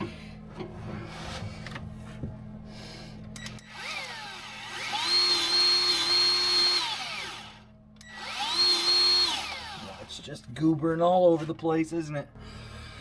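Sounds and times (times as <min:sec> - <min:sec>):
grease gun motor whining: 0:03.4 - 0:10.2.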